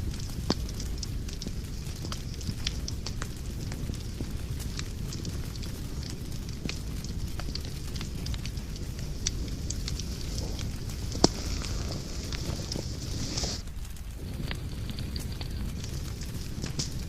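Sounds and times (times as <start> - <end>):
fire crackling and popping: 0.0 - 17.0
fire rumbling: 0.0 - 17.0.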